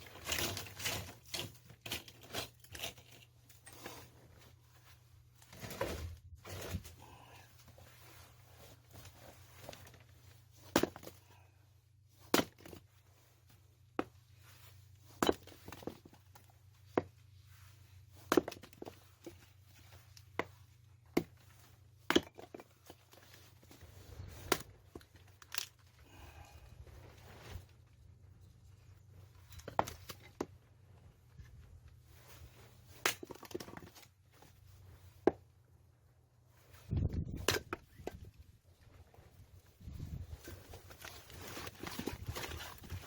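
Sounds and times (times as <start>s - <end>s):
axe splitting firewood: 0.0s - 3.8s, 9.0s - 11.4s, 12.3s - 12.9s, 15.1s - 17.1s, 18.2s - 19.4s, 20.3s - 26.5s, 29.4s - 30.6s, 32.8s - 34.2s, 37.1s - 38.3s, 40.1s - 43.0s.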